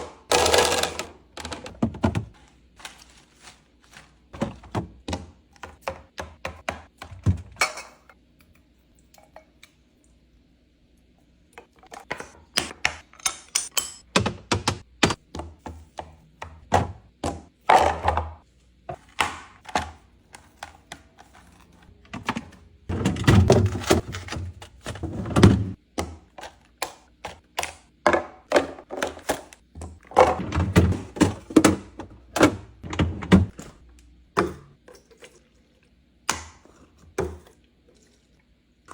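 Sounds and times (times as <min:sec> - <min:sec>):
jars and bottles knocking on shelves: 0:00.0 - 0:02.4, 0:04.4 - 0:07.6, 0:13.8 - 0:18.4, 0:28.0 - 0:33.6, 0:34.4 - 0:34.8.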